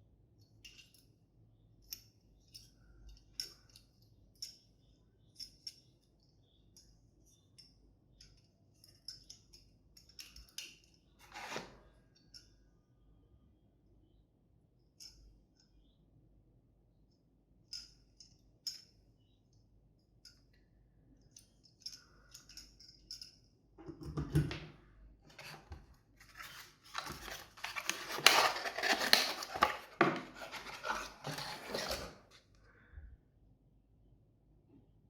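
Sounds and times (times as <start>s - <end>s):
packaging rustling and scraping: 11.2s - 11.8s, 25.3s - 32.4s.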